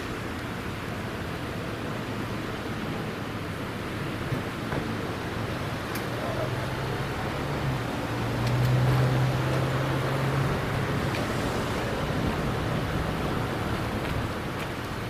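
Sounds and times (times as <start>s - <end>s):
rushing background noise: 0.0s - 15.0s.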